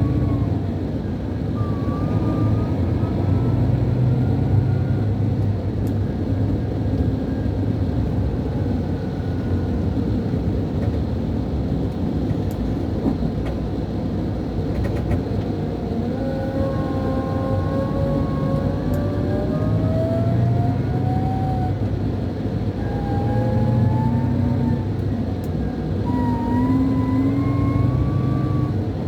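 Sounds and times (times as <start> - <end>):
rising whine: 0.0 - 5.5, 15.4 - 29.0
bus diesel engine droning: 0.0 - 29.0.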